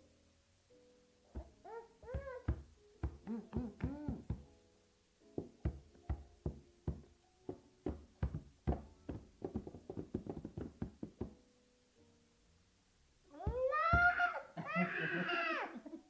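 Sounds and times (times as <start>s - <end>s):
irregular knocks with ringing: 5.4s - 11.4s.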